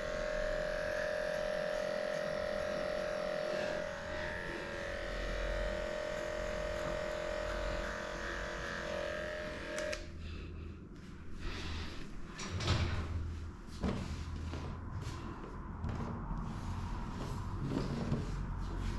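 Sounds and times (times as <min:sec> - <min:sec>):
electric clippers humming: 0:00.0 - 0:10.1.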